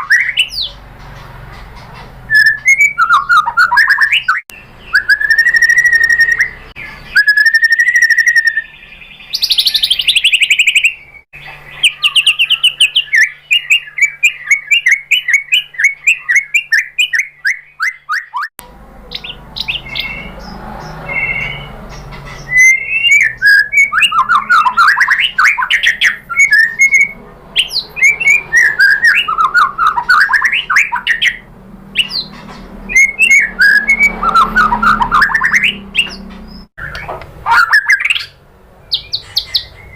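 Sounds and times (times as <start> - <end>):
bird singing whistles and trills: 0.0 - 0.8, 2.3 - 18.5, 19.1 - 39.9.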